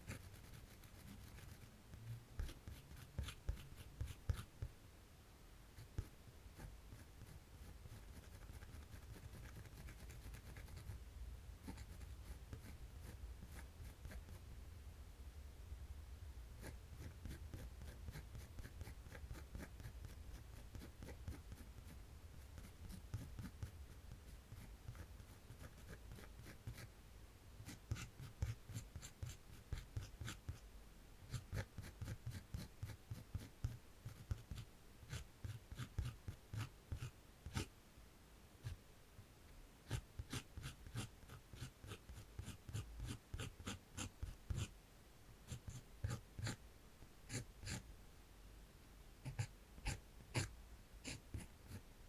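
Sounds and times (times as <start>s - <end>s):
pencil scratching on paper: 0.0s - 1.7s, 2.4s - 4.6s, 5.8s - 11.0s, 11.6s - 14.4s, 16.6s - 26.9s, 27.6s - 30.6s, 31.3s - 37.7s, 39.9s - 44.7s, 45.5s - 46.6s, 47.3s - 47.8s, 49.2s - 51.8s.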